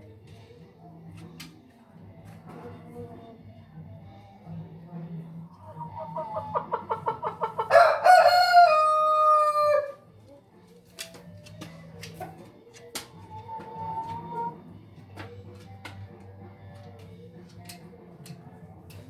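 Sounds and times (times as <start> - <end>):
rooster clucking: 5.5 - 10.0, 11.6 - 15.3
rooster crowing: 7.6 - 10.0.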